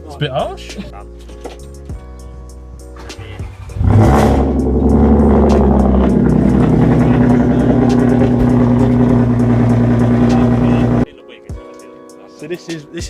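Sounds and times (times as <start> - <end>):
car engine starting and idling: 3.0 - 11.0.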